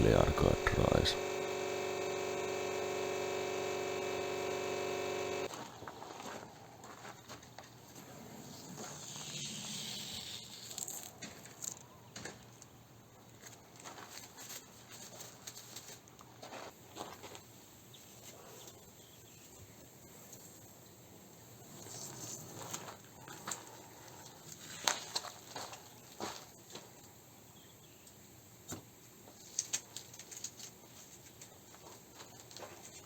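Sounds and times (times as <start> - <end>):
masking tape being peeled off: 9.9 - 11.1.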